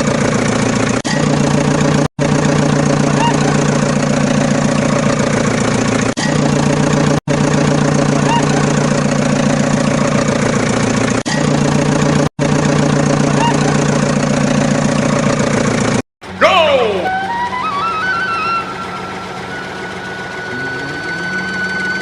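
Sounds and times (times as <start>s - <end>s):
engine idling drone: 0.0s - 22.0s.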